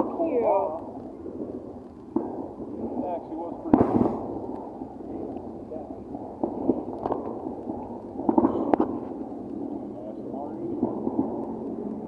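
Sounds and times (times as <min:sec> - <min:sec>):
background murmur: 0:00.0 - 0:12.0
firework pops and cracks: 0:00.0 - 0:12.0.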